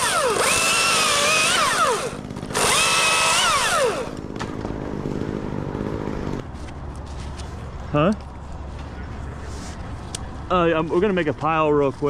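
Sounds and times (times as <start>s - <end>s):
chainsaw revving: 0.0s - 6.4s.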